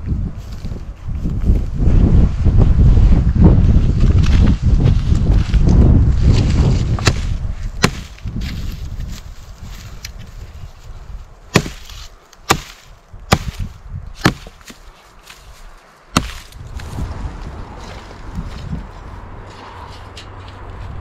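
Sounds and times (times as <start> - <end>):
wood being chopped: 7.0 - 8.6, 11.5 - 15.4, 16.1 - 16.6.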